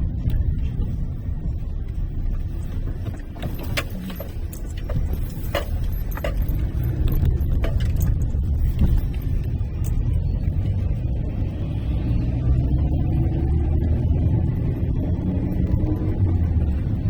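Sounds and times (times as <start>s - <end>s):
car engine and road rumble: 0.0s - 17.0s
sharp clicks and small rattles: 1.8s - 10.7s.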